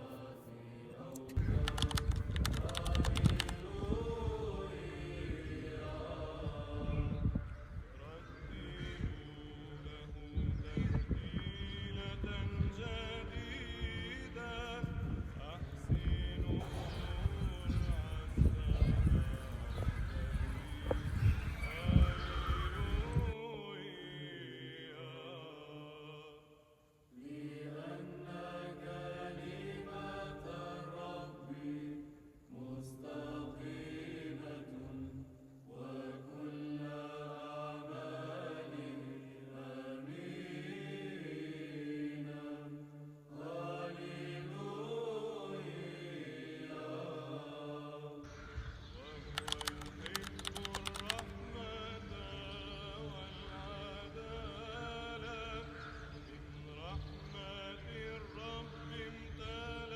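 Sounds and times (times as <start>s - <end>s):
voices chanting a slow melody: 0.0s - 59.9s
quick run of clicks: 1.2s - 3.7s, 49.2s - 51.5s.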